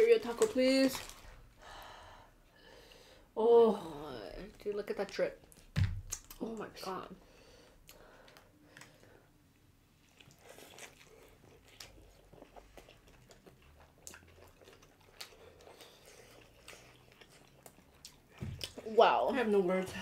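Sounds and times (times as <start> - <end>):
wet chewing: 10.0 - 20.0.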